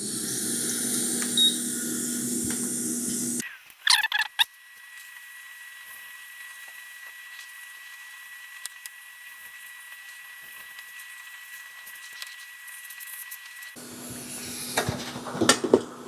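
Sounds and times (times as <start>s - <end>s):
hot air blower hissing: 0.0s - 3.4s, 13.8s - 16.0s.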